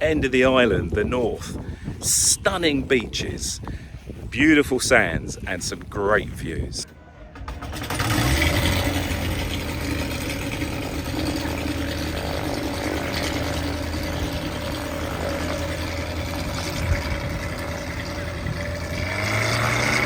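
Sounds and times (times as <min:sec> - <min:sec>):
propeller engine droning: 0:07.3 - 0:20.0.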